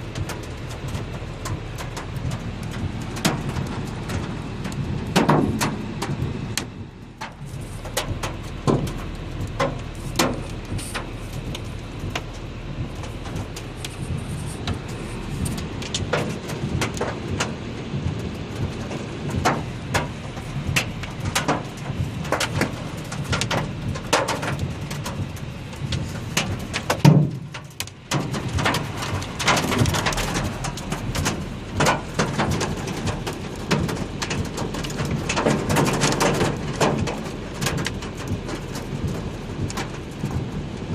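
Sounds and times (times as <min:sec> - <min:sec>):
hailstones striking hard surfaces: 0:00.0 - 0:40.9
heavy rain hiss: 0:00.0 - 0:40.9.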